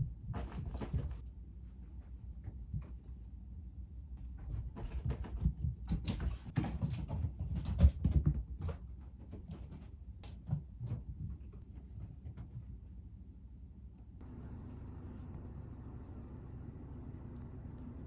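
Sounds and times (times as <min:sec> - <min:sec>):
kittens scrabbling on floor: 0:00.3 - 0:01.2, 0:04.2 - 0:12.7.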